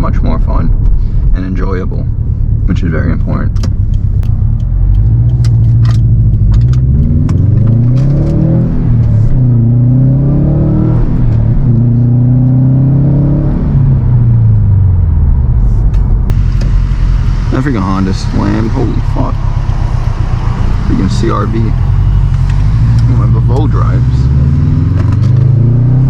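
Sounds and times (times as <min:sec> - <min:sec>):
car engine revving through gears: 0:03.5 - 0:15.0, 0:16.3 - 0:26.0.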